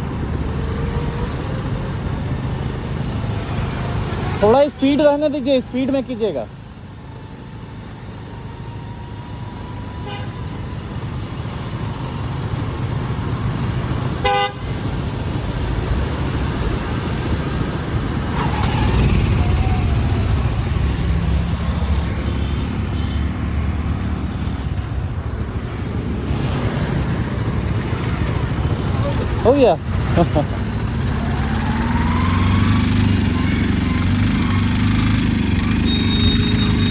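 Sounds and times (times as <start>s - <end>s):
motor vehicle rumble: 0.0s - 36.9s
horn toot: 14.2s - 14.8s, 35.8s - 36.9s.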